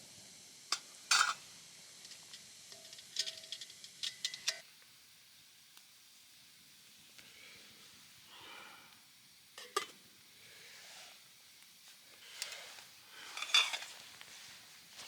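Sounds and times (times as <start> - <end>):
faint hiss: 0.0 - 15.0
metal utensils clinking and scraping: 0.7 - 1.4, 2.1 - 4.6, 12.3 - 14.0.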